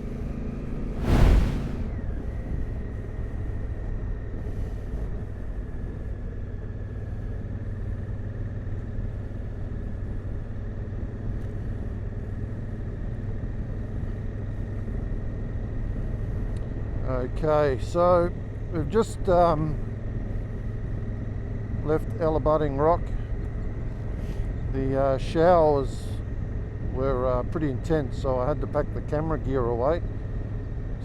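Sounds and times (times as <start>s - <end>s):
wind and road noise: 0.7s - 8.6s.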